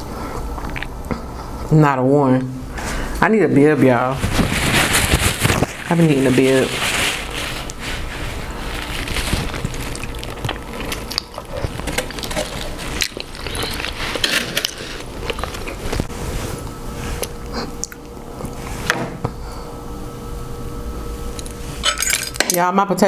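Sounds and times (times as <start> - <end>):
chewing and lip-smacking: 0.3 - 1.5, 9.6 - 16.1, 17.2 - 18.6
food handling clicks and rustles: 4.0 - 18.6.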